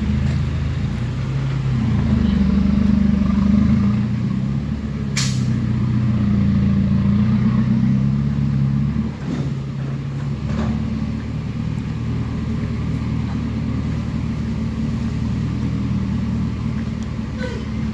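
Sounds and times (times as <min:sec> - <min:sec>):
diesel engine running: 0:00.0 - 0:17.9
sharp click: 0:05.2 - 0:05.5.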